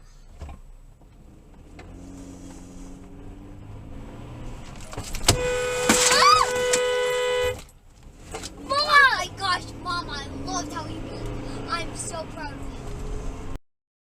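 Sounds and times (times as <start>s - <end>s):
car engine and road noise: 0.0s - 13.6s
car horn held: 5.2s - 7.7s.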